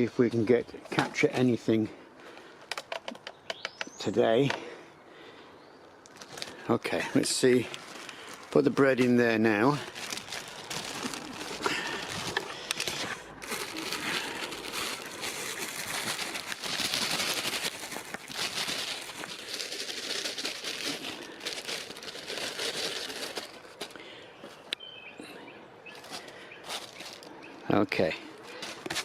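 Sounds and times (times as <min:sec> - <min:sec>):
bread crinkling and crackling: 0:06.1 - 0:24.1, 0:28.4 - 0:29.0.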